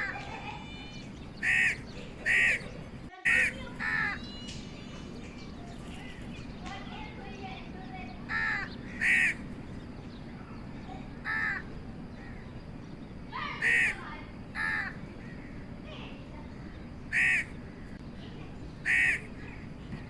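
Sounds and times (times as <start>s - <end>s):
crow cawing: 0.0s - 5.0s, 8.2s - 9.5s, 10.9s - 12.5s, 13.3s - 15.8s, 17.1s - 18.0s, 18.8s - 19.6s
low background hiss: 0.0s - 20.0s.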